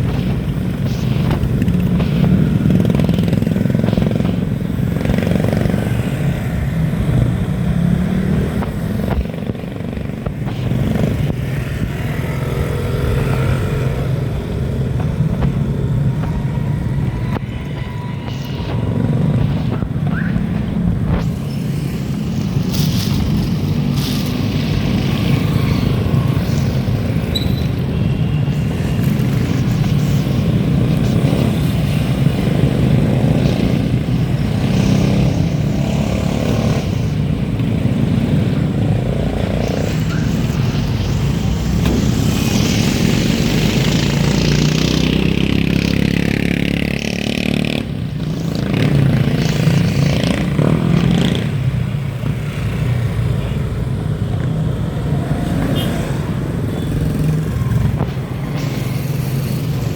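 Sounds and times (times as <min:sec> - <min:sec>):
wind and road noise: 0:00.0 - 0:59.9
vehicle passing: 0:28.5 - 0:53.2.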